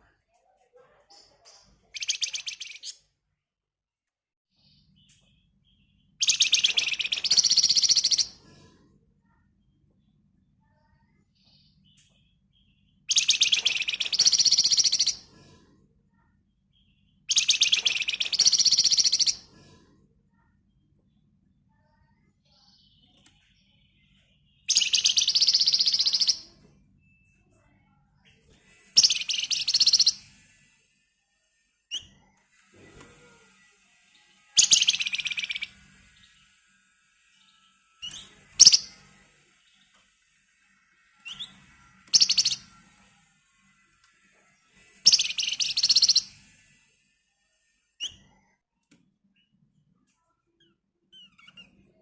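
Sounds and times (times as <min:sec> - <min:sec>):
songbird chattering trills: 0:01.9 - 0:03.0, 0:06.2 - 0:08.3, 0:13.1 - 0:15.2, 0:17.3 - 0:19.4, 0:24.7 - 0:26.5, 0:29.0 - 0:30.2, 0:34.6 - 0:35.7, 0:38.0 - 0:39.0, 0:42.2 - 0:42.6, 0:45.1 - 0:46.4.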